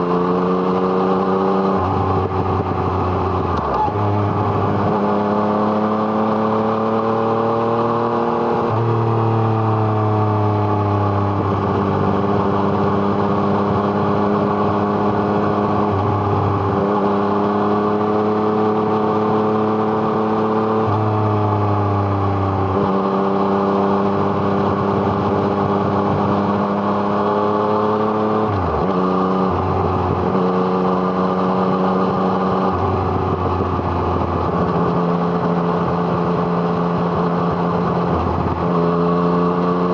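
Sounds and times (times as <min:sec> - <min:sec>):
motorcycle engine under load: 0:21.9 - 0:39.8.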